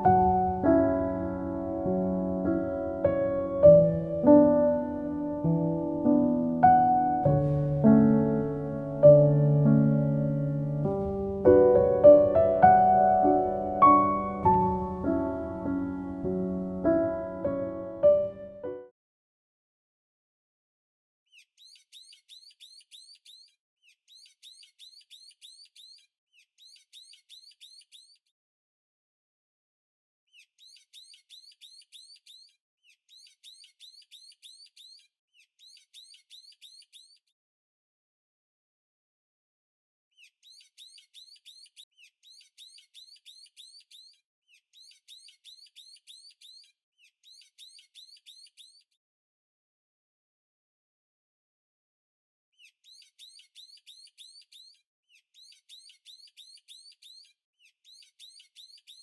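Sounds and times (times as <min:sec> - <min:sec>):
bird chirping in trills: 0:21.3 - 0:28.3, 0:30.3 - 0:37.3, 0:40.2 - 0:49.0, 0:52.6 - 0:59.0.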